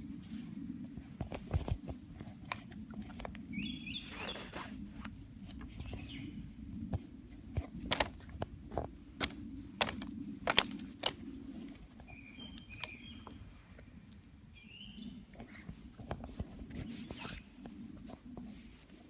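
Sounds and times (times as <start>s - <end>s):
bird chirping: 3.5s - 4.7s, 5.8s - 6.5s, 12.0s - 13.4s, 14.6s - 15.3s.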